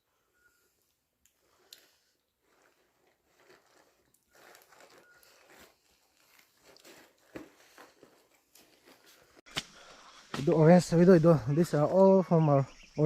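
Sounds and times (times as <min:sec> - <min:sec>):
faint rustling: 0:01.4 - 0:09.4.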